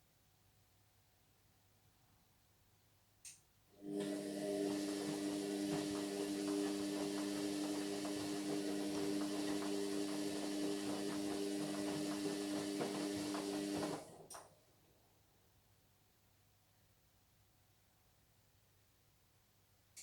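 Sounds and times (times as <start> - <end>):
washing machine humming: 3.8 - 14.4.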